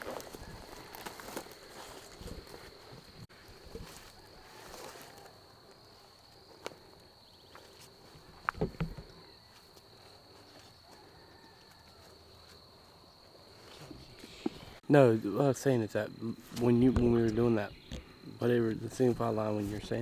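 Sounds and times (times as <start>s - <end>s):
rustling: 0.0s - 12.7s.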